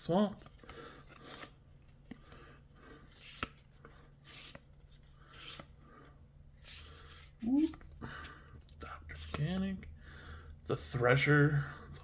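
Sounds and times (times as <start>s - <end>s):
cards flipped by hand: 0.3s - 2.4s, 3.0s - 5.8s, 6.6s - 8.0s, 8.7s - 9.6s.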